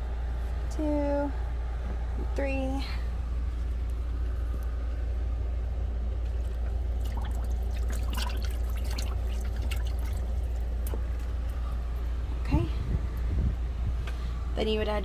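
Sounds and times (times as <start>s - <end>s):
washing machine low hum: 0.0s - 15.0s
water splashing in wash tub: 6.0s - 12.1s.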